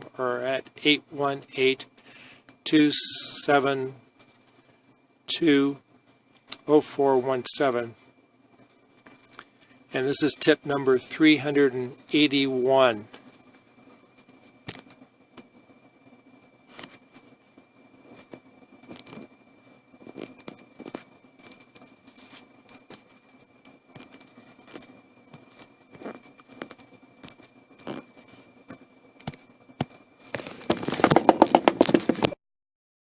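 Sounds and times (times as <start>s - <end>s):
faint high whine: 0.0s - 32.4s
rapid crackling rustle: 20.0s - 28.6s
clicks and rustles: 20.0s - 32.4s.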